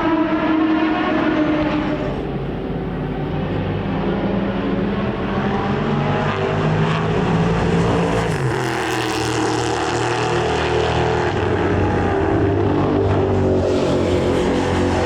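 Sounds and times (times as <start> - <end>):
racing car engine passing: 0.0 - 15.0.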